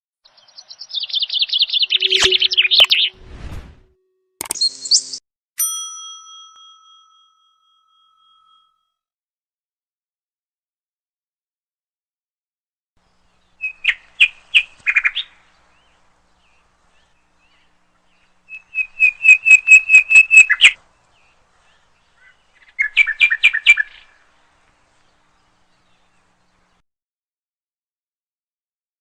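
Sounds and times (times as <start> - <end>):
small bird chirping: 0.3 - 3.2, 13.1 - 26.8.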